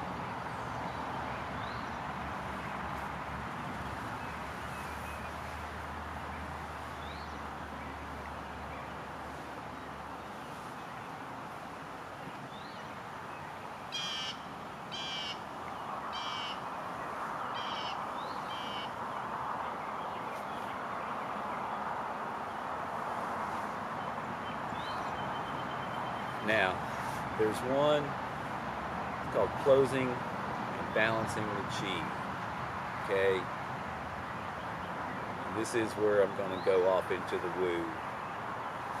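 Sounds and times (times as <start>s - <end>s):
bird calling: 12.5s - 16.8s, 17.4s - 21.8s.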